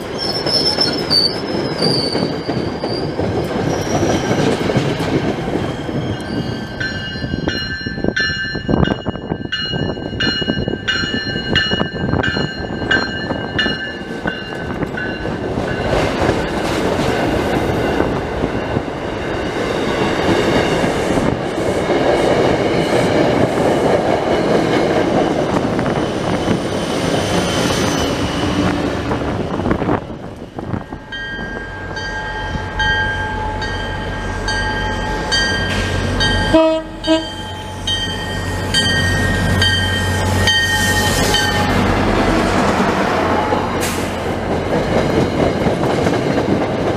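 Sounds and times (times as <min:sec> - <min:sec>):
locomotive humming: 0:00.0 - 0:46.9
train wheels rumbling on rails: 0:00.0 - 0:46.9
railroad crossing bells ringing: 0:06.0 - 0:16.2, 0:17.1 - 0:19.3, 0:30.6 - 0:42.0
train horn blasts: 0:36.4 - 0:37.6.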